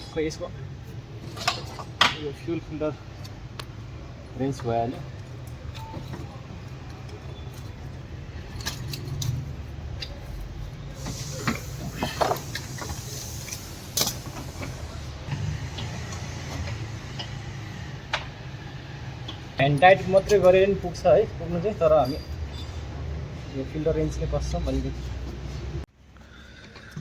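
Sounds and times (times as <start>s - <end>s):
brief hiss: 11.0s - 16.0s
metallic clinks and scrapes: 21.6s - 23.0s.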